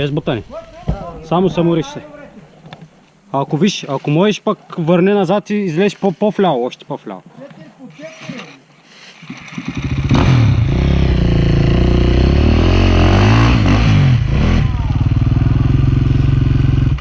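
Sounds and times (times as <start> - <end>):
dirt bike engine revving hard: 9.2 - 17.0.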